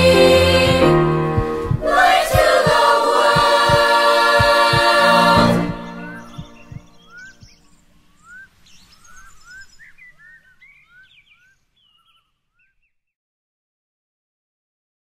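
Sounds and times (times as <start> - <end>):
choir chord: 0.0 - 7.0
soft low thumps: 0.0 - 7.6
birds singing: 5.6 - 13.0.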